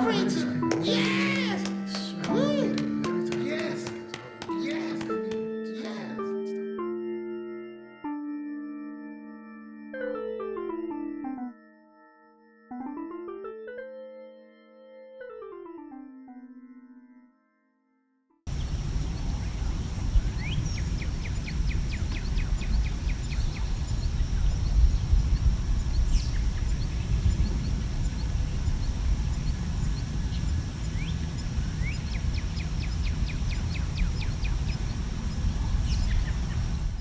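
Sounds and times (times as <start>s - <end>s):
birds chirping and trilling: 18.5s - 37.0s.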